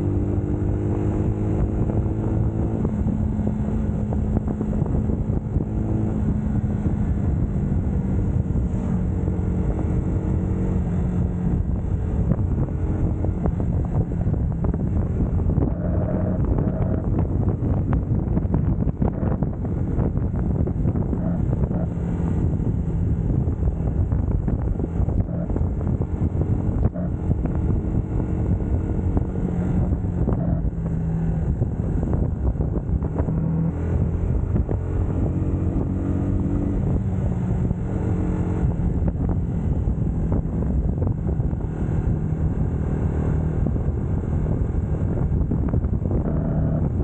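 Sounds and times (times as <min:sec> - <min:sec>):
motorcycle engine running: 0:00.0 - 0:47.0
wind buffeting microphone: 0:00.0 - 0:47.0.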